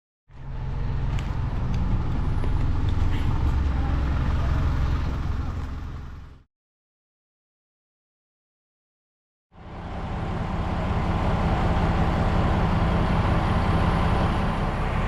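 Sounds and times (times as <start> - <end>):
motor vehicle engine rumbling: 0.3 - 6.5, 9.6 - 15.0.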